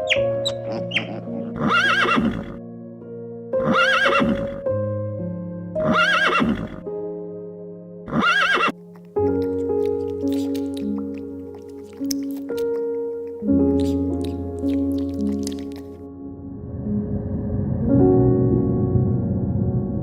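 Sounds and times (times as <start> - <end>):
horse whinnying: 0.0 - 2.6, 3.6 - 4.6, 5.8 - 6.8, 8.1 - 8.8
background music: 0.0 - 20.0.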